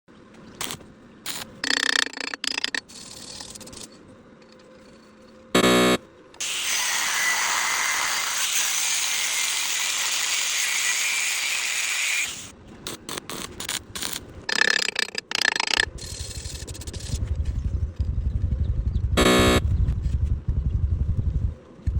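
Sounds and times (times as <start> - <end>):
short loud buzz: 5.6 - 6.0, 19.2 - 19.7.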